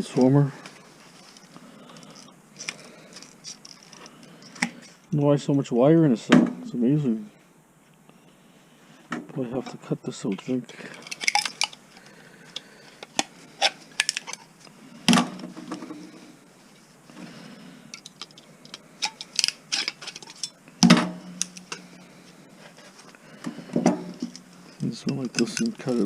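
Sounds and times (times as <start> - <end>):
metal parts clattering: 2.2 - 4.6, 10.8 - 11.8, 13.0 - 14.5, 17.9 - 20.6, 24.3 - 26.0.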